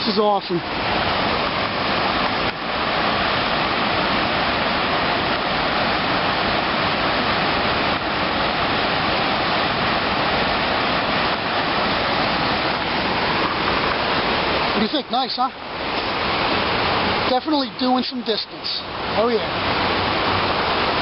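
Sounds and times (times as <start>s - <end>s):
water pouring over a dam: 0.0s - 21.0s.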